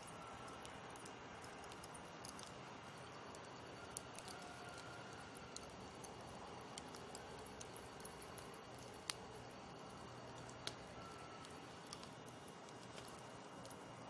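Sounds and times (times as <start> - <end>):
burning wood popping and snapping: 0.0 - 14.0
campfire hissing: 0.0 - 14.0.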